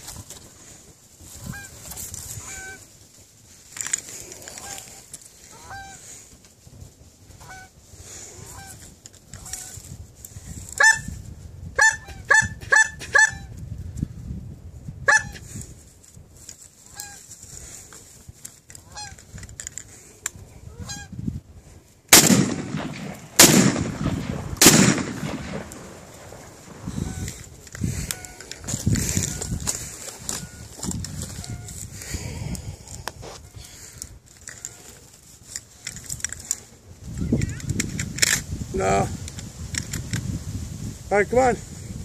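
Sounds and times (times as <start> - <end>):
geese honking: 1.4 - 2.9, 4.5 - 6.2, 7.4 - 8.8, 16.9 - 17.3, 18.8 - 19.2, 26.8 - 31.8
shotgun blasts: 22.1 - 26.8.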